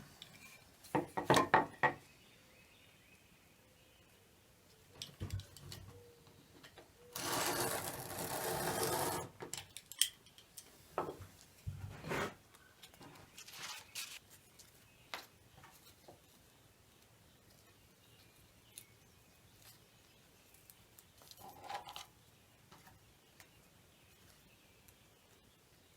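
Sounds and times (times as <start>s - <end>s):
tape pulled off roll: 7.1s - 9.4s.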